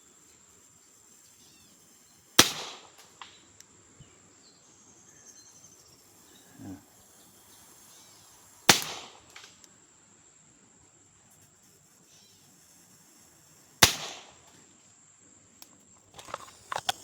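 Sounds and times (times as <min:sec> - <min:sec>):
air pistol shot crack: 0:02.4 - 0:03.4, 0:08.7 - 0:09.5, 0:13.8 - 0:14.4.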